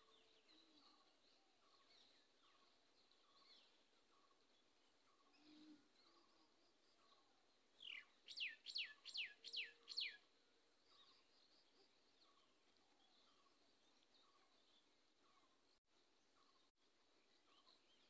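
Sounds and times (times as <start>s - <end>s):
faint bird chirping: 0.0s - 18.0s.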